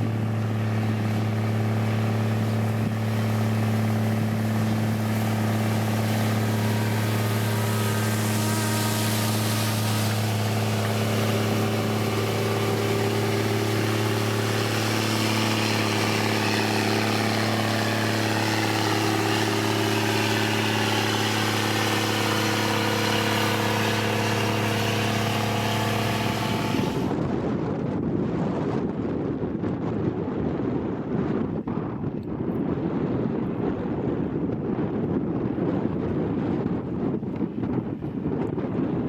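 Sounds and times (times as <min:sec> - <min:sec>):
heavy machine engine humming: 0:00.0 - 0:27.2
wind on microphone: 0:00.0 - 0:39.0.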